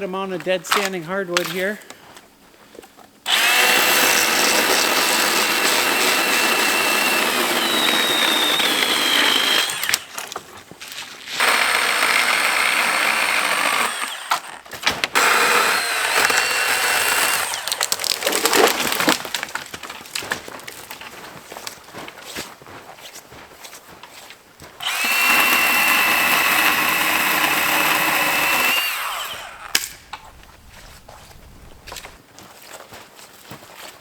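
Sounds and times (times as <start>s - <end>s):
electric chainsaw cutting wood: 3.3s - 10.4s, 11.3s - 19.4s, 24.8s - 32.2s.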